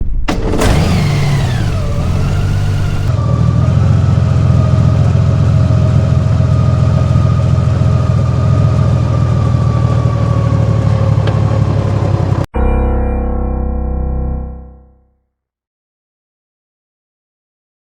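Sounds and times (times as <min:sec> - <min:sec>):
motorcycle engine whining: 0:00.3 - 0:12.5.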